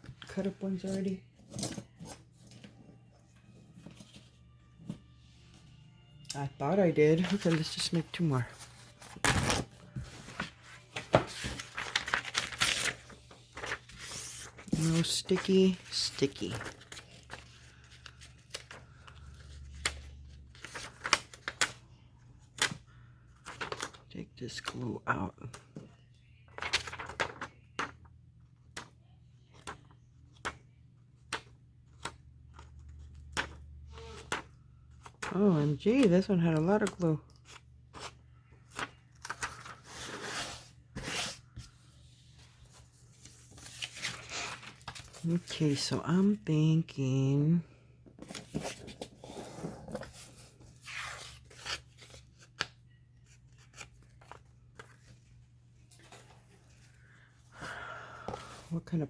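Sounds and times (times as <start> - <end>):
paper rustling and crinkling: 6.6 - 21.8, 23.4 - 24.8, 26.5 - 27.9, 31.9 - 46.3, 48.1 - 57.1.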